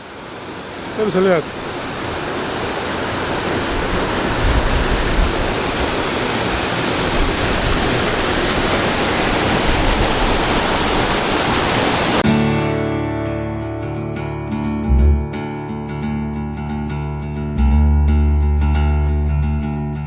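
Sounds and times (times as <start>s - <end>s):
waterfall rushing: 0.0s - 12.2s
guitar music: 12.2s - 20.0s.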